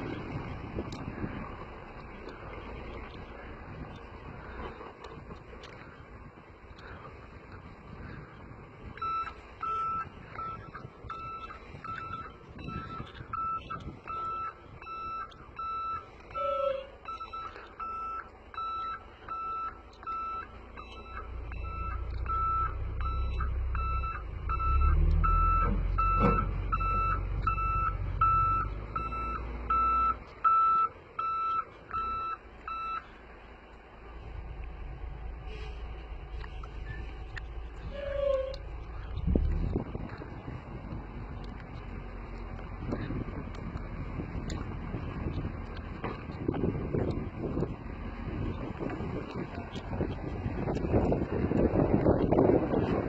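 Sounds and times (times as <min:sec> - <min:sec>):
diesel engine rumbling: 0:00.0 - 0:53.0
truck warning beeper: 0:09.0 - 0:33.1.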